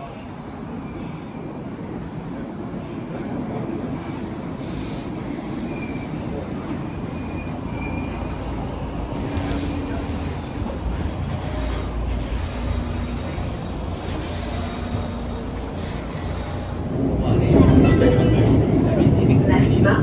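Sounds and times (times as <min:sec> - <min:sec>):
metro train rumbling on rails: 0:00.0 - 0:20.0
faint wheel squeals: 0:07.1 - 0:08.6, 0:11.0 - 0:13.0.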